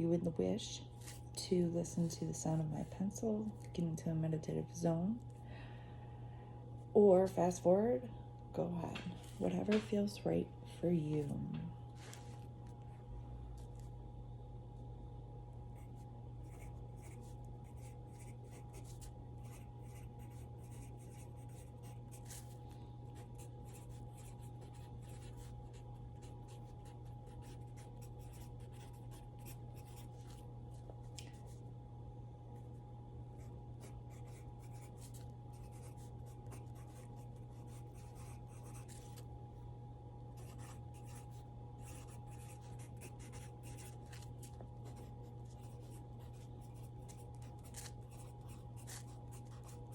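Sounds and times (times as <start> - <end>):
steady low hum: 0.0 - 49.9
pencil scratching on paper: 15.8 - 22.6, 23.2 - 30.4, 33.8 - 39.2, 40.4 - 49.9.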